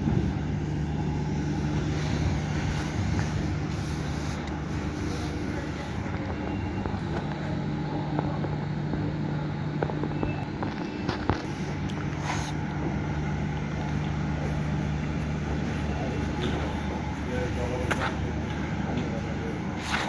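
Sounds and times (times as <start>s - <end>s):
vehicle engine droning: 0.0s - 20.0s.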